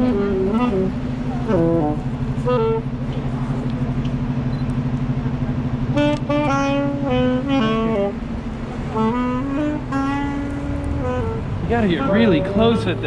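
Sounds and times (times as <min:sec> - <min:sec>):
saxophone melody: 0:00.0 - 0:03.1, 0:05.9 - 0:13.0.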